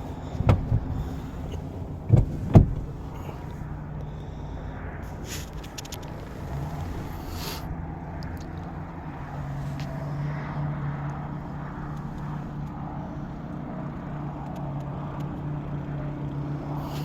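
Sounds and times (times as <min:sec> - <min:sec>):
engine idling hum: 0:00.0 - 0:17.0
faint clicks: 0:14.4 - 0:15.5.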